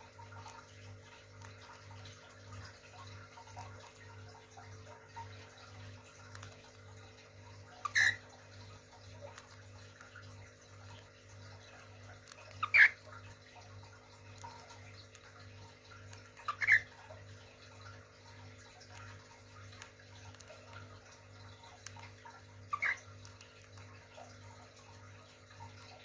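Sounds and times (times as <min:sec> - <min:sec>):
faint bird chirping: 0:07.7 - 0:08.3, 0:10.8 - 0:13.2, 0:16.1 - 0:17.1, 0:22.7 - 0:23.8
cage bird loud call: 0:07.8 - 0:08.2, 0:12.5 - 0:13.0, 0:16.4 - 0:16.9.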